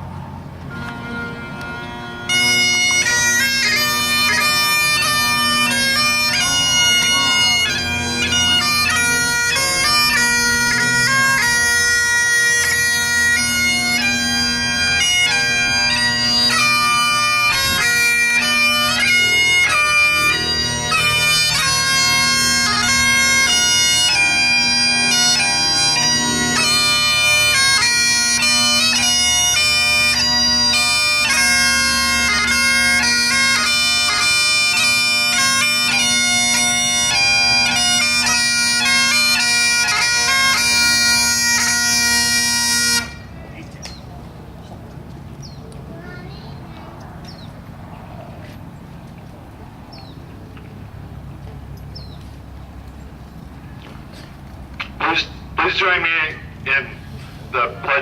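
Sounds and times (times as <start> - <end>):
bagpipes playing slow tune: 0.3 - 44.0.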